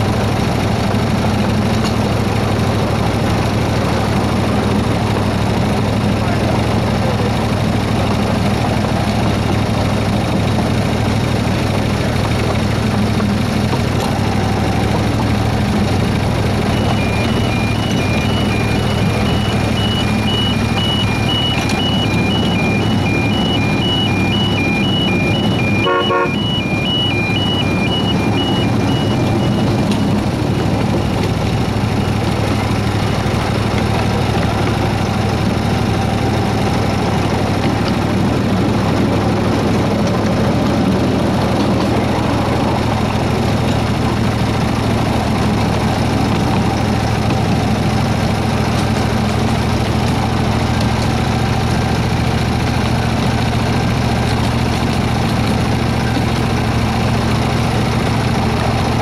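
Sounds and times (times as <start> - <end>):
miniature locomotive engine running: 0.0 - 59.0
high two-tone beeping: 16.5 - 31.2.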